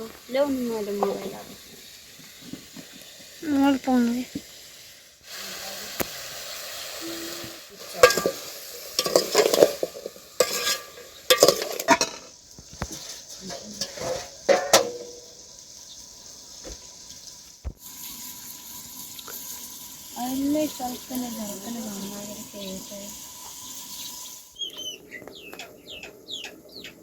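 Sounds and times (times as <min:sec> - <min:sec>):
food sizzling in a pan: 0:00.0 - 0:24.9
metal spoon scraping a pan: 0:00.8 - 0:01.6, 0:05.9 - 0:15.5.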